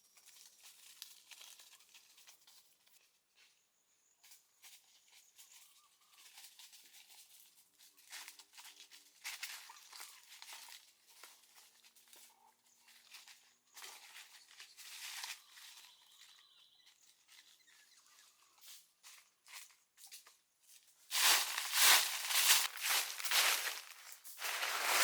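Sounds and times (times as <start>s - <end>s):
faint rustling and scraping: 17.2s - 25.0s.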